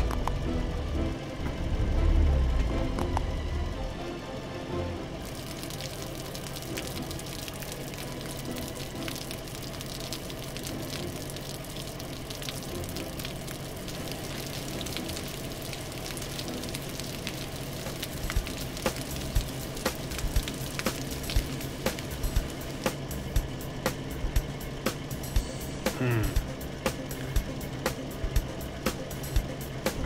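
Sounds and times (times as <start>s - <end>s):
hissing water spray: 5.3s - 23.2s.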